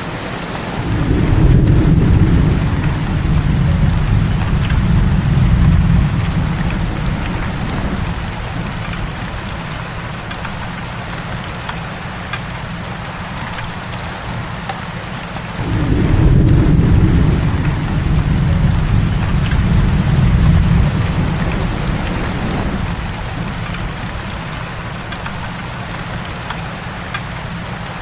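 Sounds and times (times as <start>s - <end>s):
heavy rain falling: 0.0s - 28.0s
thunder rumbling: 0.1s - 11.3s, 15.5s - 26.3s.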